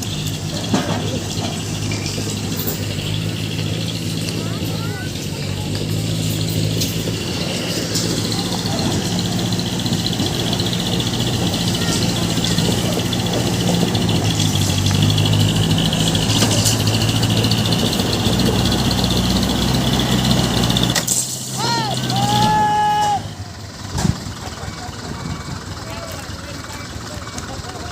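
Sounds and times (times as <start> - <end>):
diesel truck engine running: 0.0 - 27.9.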